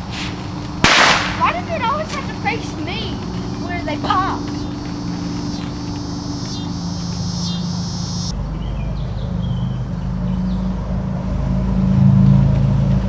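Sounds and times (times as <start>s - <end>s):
insects chirring: 0.0s - 8.8s
motor humming: 1.5s - 8.3s.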